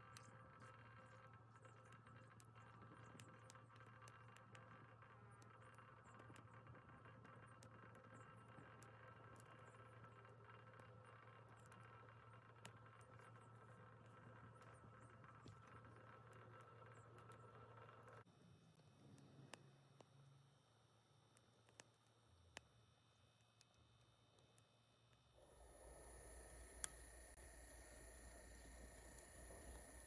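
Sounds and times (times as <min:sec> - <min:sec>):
low steady hum: 0:00.0 - 0:30.0
wood fire crackling: 0:25.4 - 0:30.0.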